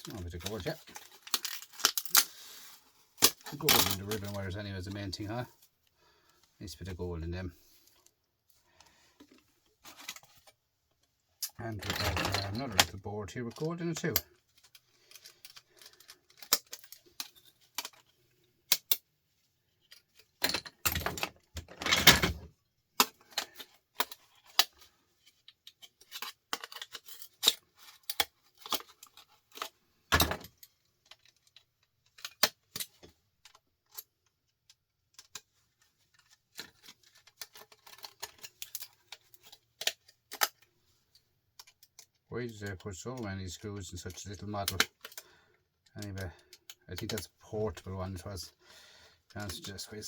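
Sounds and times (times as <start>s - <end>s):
tools clicking on metal parts: 0.9s - 2.3s, 11.4s - 12.9s, 13.5s - 18.1s.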